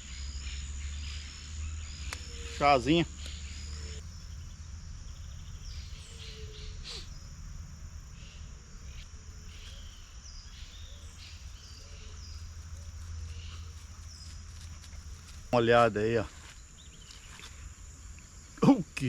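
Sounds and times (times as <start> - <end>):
bird chirps: 0.0 - 7.4, 8.1 - 14.4
low steady rumble: 0.0 - 15.6
crickets trilling: 0.0 - 19.0.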